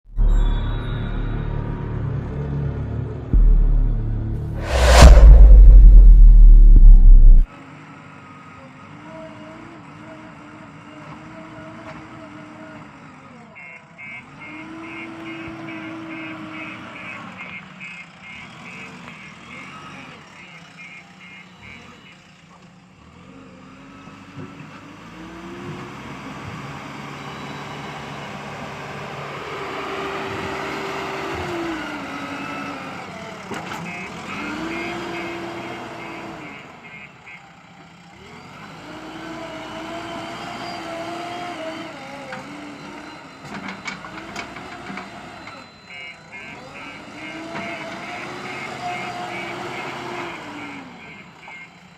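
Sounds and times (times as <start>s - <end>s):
diesel engine running: 2.8s - 7.5s
backhoe engine whining under load: 7.7s - 51.9s
reversing alarm beeping: 42.4s - 51.9s.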